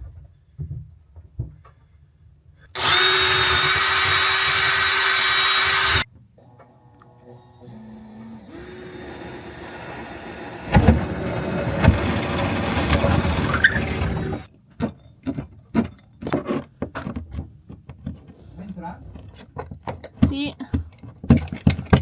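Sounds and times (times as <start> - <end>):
power tool motor running: 2.8 - 6.1, 7.2 - 14.5
heavy knocks: 10.7 - 14.5.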